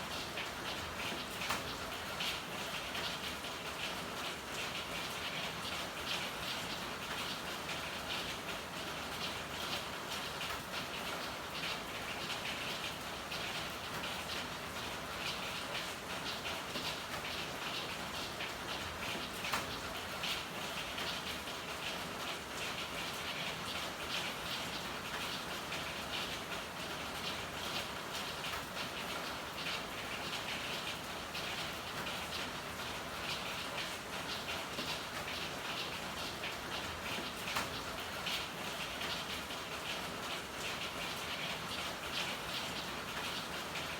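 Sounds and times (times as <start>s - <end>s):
rain pattering: 0.0s - 43.9s.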